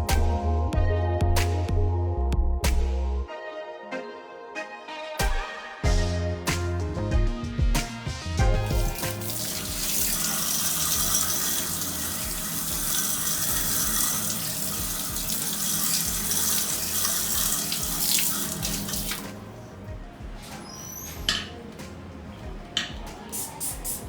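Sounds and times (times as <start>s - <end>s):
water spray hissing: 8.6s - 19.4s, 23.2s - 24.0s.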